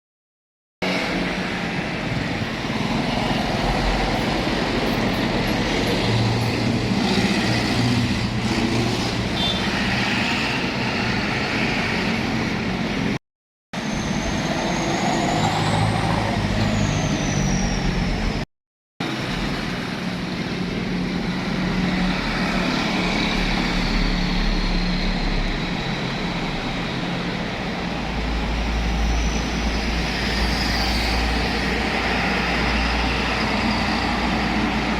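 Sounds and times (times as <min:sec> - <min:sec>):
traffic noise: 0:00.8 - 0:13.2, 0:13.8 - 0:34.9
trucks driving past: 0:13.8 - 0:18.4, 0:19.0 - 0:34.9.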